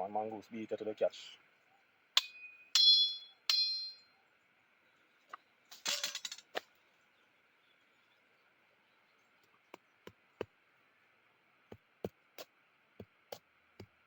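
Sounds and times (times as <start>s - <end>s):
sharp metallic strikes ringing: 2.2s - 4.0s.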